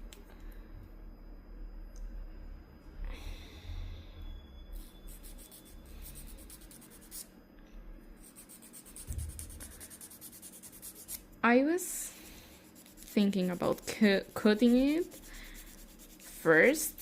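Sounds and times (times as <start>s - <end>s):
nail file rasping on fingernail: 8.2s - 11.2s, 12.7s - 17.0s.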